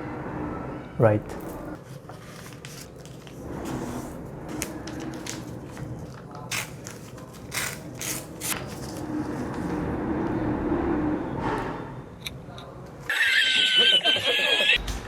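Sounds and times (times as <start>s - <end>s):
paper rustling and crinkling: 1.8s - 9.8s.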